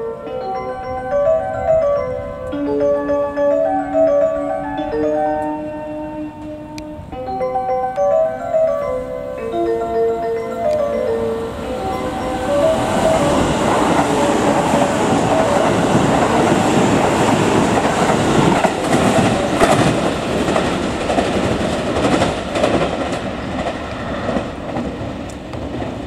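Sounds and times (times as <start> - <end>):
train passing at speed: 0.0 - 26.0
wheels clattering over rail joints: 7.3 - 26.0.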